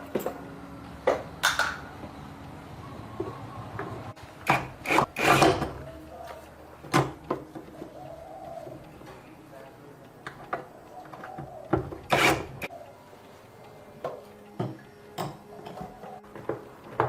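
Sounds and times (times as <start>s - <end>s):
hand tools scraping and knocking: 10.6s - 12.7s.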